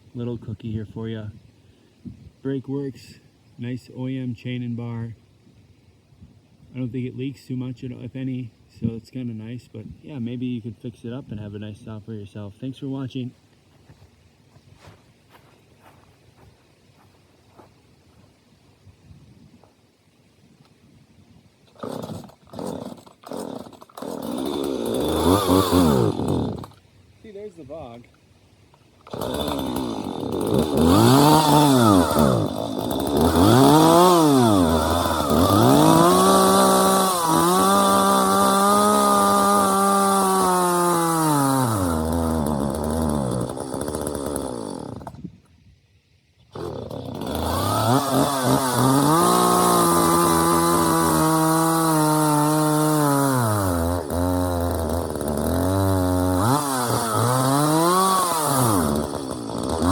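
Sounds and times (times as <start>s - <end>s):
chainsaw revving: 21.7s - 26.8s, 29.0s - 45.2s, 46.5s - 59.9s.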